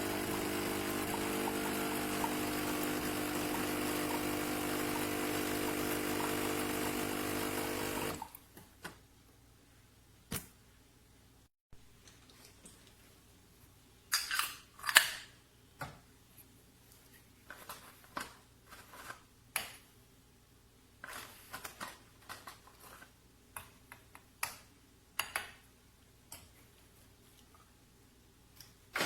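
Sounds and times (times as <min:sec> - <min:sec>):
rustles and scrapes: 0:16.3 - 0:19.3, 0:21.0 - 0:23.2.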